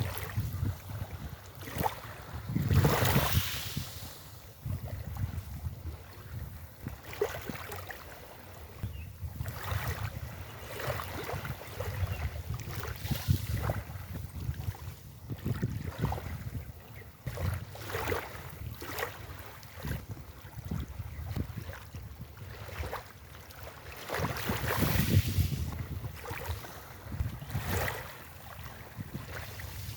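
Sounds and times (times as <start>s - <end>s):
wind buffeting microphone: 0.0s - 7.6s, 8.6s - 23.3s, 23.9s - 29.9s
waves breaking on beach: 0.0s - 8.6s, 9.4s - 15.0s, 22.5s - 29.9s.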